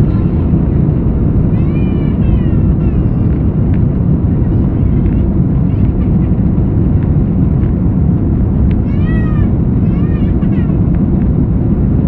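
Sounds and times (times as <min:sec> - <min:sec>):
airplane cabin engine noise: 0:00.0 - 0:12.0
baby crying: 0:08.9 - 0:10.8.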